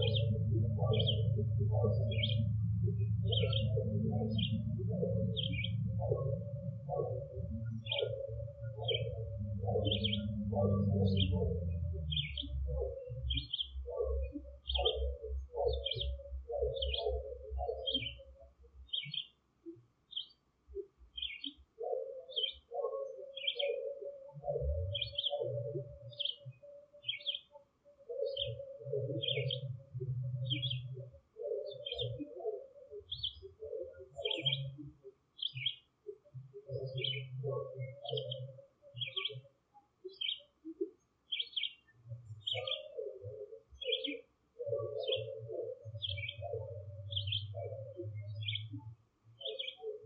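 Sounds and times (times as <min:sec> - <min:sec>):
low rumble: 0:00.0 - 0:13.3
bird chirping: 0:00.0 - 0:50.0.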